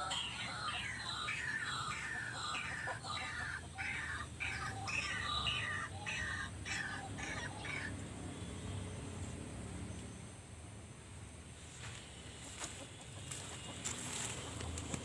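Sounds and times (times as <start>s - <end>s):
waterhens calling: 0.0s - 8.0s.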